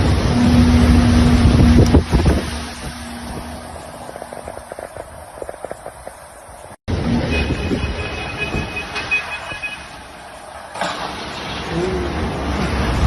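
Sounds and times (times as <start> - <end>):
storm wind buffeting microphone: 0.0 - 8.8.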